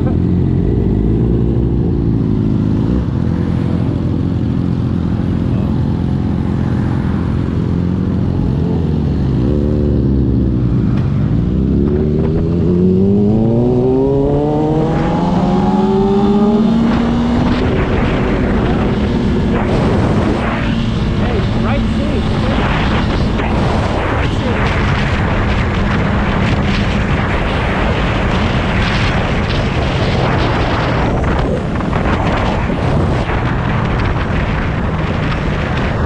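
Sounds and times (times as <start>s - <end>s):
motorcycle engine accelerating: 0.0s - 36.0s
wind on microphone: 0.0s - 36.0s.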